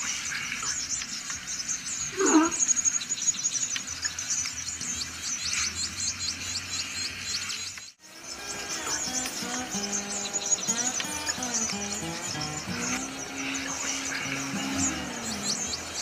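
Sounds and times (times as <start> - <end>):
birds chirping chorus: 0.0 - 16.0
louder lower bird call: 8.4 - 16.0.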